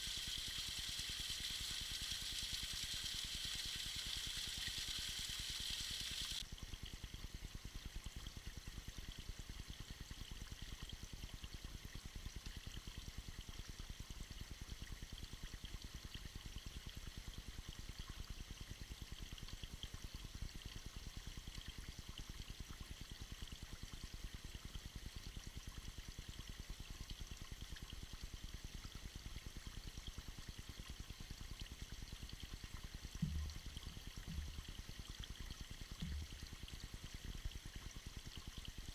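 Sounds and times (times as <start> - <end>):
bright hiss: 0.0 - 6.4
waterfall trickling and splashing: 0.0 - 38.9
low thump: 33.2 - 33.6.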